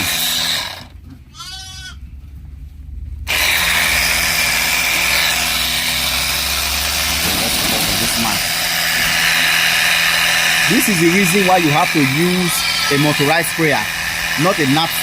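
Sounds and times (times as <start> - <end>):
goat bleating: 1.3 - 2.0, 12.2 - 13.3
sprayer engine running: 3.3 - 15.0.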